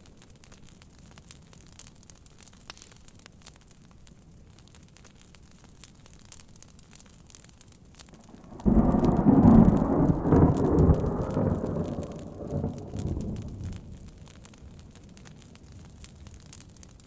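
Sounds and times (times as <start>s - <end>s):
thunder rumbling: 8.2s - 15.0s.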